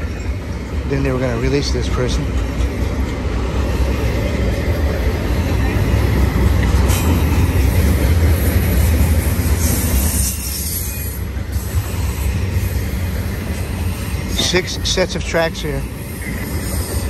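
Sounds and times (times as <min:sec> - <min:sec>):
freight train wheels rumbling: 0:00.0 - 0:17.0
wheel hiss: 0:03.6 - 0:17.0.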